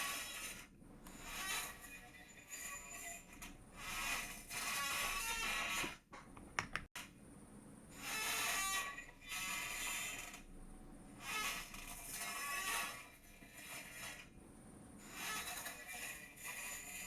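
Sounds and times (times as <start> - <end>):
chair creaking: 3.4 - 6.0
sharp clicks: 6.2 - 6.9.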